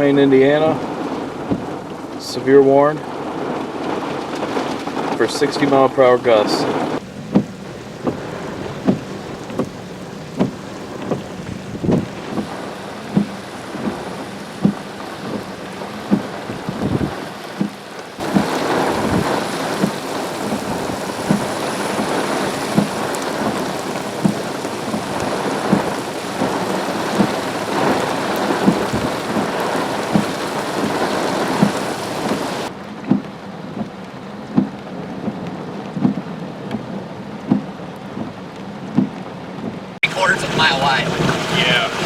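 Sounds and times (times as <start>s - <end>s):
wind hiss: 0.0s - 32.7s
heavy rain on hard surface: 0.0s - 42.0s.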